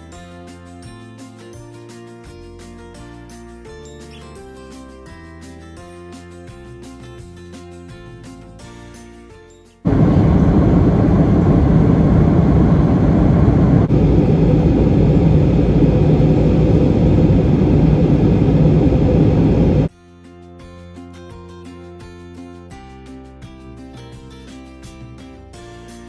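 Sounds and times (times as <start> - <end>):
jet airliner rush: 9.9 - 19.9.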